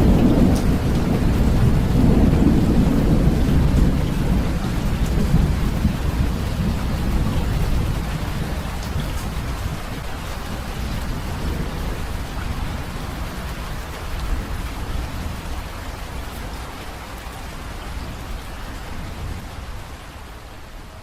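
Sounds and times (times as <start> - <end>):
thunder rumble: 0.0 - 15.8
steady rain falling: 0.0 - 21.0.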